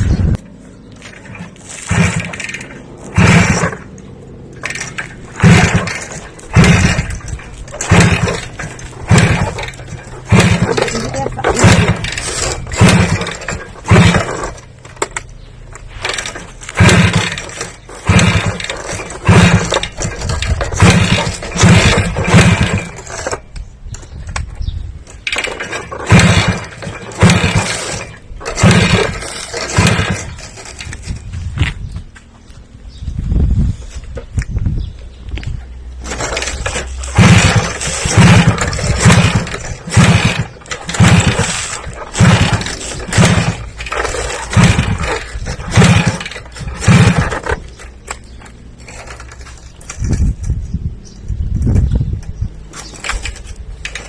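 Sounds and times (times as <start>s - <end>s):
motor revving in bursts: 1.8s - 3.9s, 4.6s - 14.6s, 15.9s - 23.3s, 25.4s - 30.6s, 36.0s - 47.6s.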